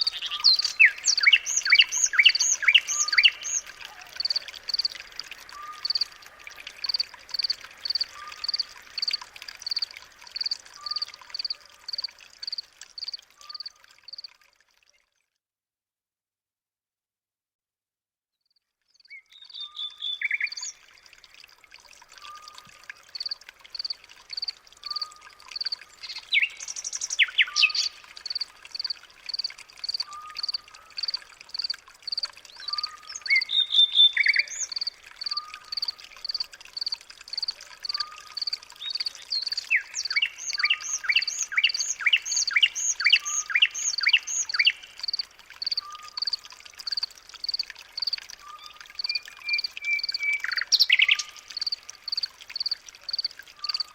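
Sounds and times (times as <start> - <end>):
birds chirping and calling: 0.0 - 4.9, 24.8 - 31.7, 32.6 - 36.4, 37.4 - 45.2.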